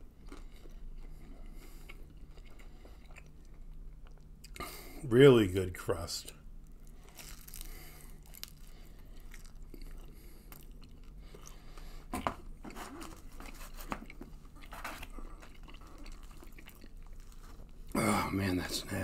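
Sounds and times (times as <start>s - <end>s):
man chewing pizza: 0.0s - 5.0s, 6.6s - 18.0s
crust crunching: 6.8s - 10.0s.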